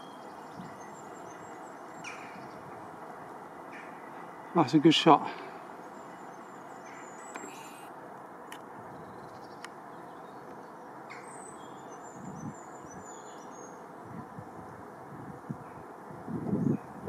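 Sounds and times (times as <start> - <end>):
high thin bird calls: 6.0 - 7.9.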